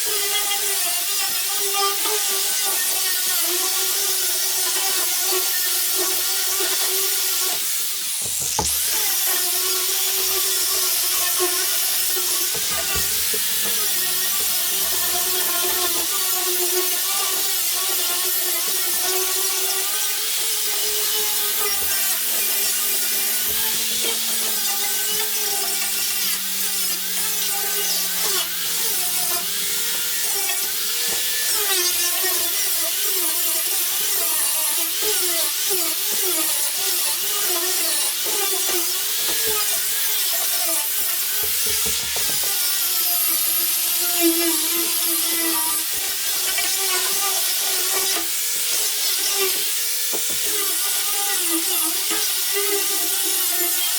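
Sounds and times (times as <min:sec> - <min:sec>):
power tool whining: 0:00.0 - 0:53.9.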